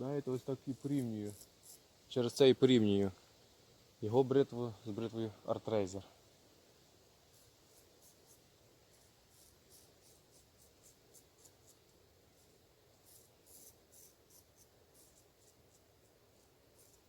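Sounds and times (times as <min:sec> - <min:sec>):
razor scraping stubble: 0:00.2 - 0:01.9, 0:07.3 - 0:17.0.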